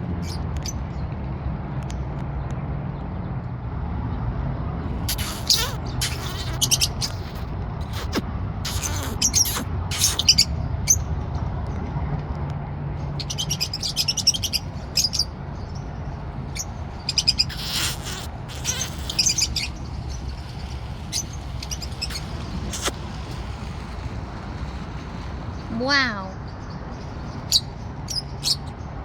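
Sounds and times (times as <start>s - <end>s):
parrot chirps and squawks: 5.0s - 11.1s, 13.2s - 15.4s, 16.4s - 26.4s, 27.2s - 28.7s.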